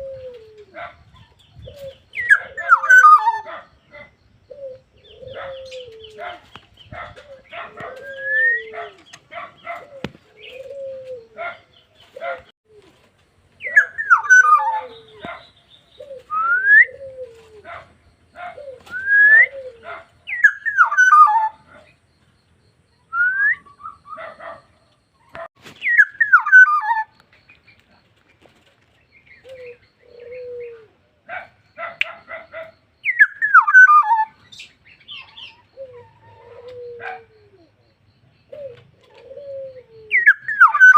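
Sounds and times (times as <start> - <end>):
bird whistling song: 1.2 - 3.5, 6.8 - 11.3, 13.6 - 17.4, 18.6 - 21.6, 23.0 - 24.3, 25.8 - 27.6, 33.0 - 37.2, 38.5 - 40.9.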